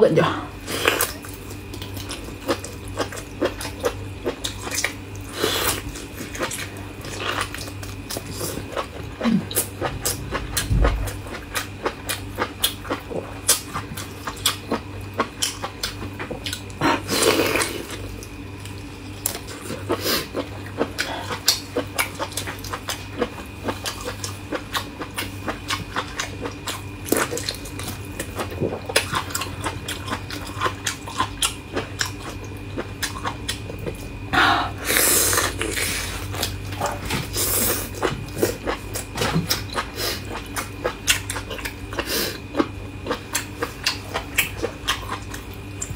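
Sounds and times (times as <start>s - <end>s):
wet chewing and biting: 0.8s - 34.2s, 35.3s - 45.9s
low hum: 8.4s - 12.2s.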